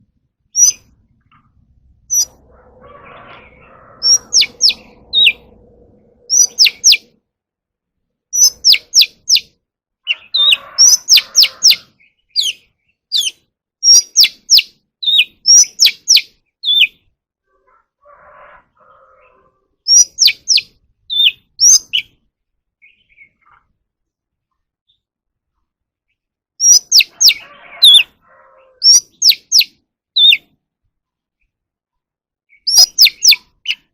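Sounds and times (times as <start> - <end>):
bird singing whistled notes: 0.5 - 1.0, 2.1 - 2.4, 4.0 - 5.6, 6.2 - 7.2, 8.3 - 9.5, 10.1 - 17.0, 19.9 - 22.2, 26.6 - 28.1, 28.8 - 30.5, 32.5 - 33.9.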